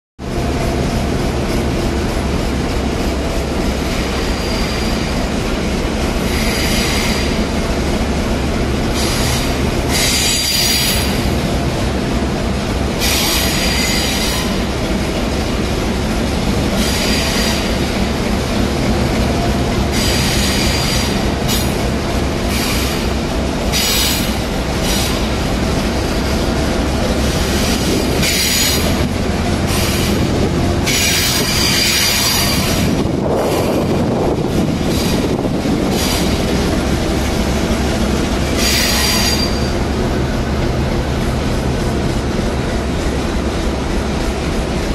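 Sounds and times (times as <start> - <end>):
train rolling rumble: 0.2 - 44.9
high-pitched wheel squeals: 9.0 - 11.2, 30.9 - 32.9, 38.6 - 39.8.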